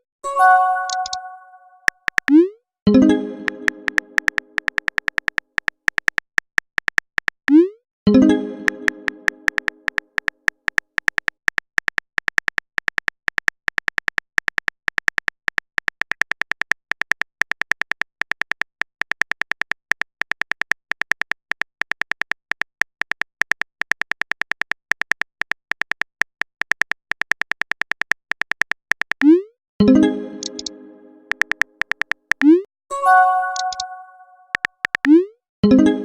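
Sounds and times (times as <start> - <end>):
touchscreen keyboard typing beeps: 0.3 - 6.2, 6.8 - 11.3, 29.2 - 35.3.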